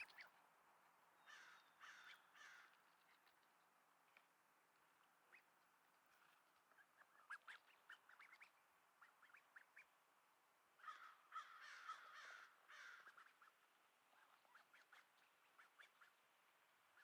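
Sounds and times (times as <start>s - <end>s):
raspy duckling calls: 0.0s - 0.3s, 1.3s - 3.1s, 6.2s - 10.0s, 10.8s - 16.3s
duckling peeping: 0.0s - 0.4s, 5.2s - 10.0s, 11.7s - 17.0s.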